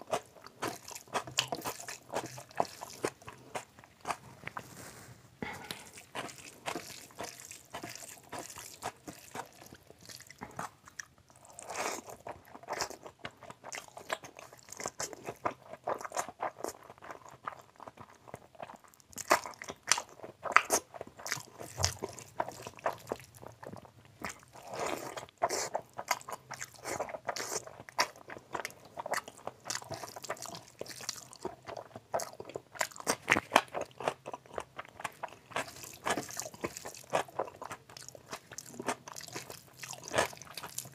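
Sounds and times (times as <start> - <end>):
close chewing with mouth clicks: 0.0 - 4.8, 5.4 - 40.9.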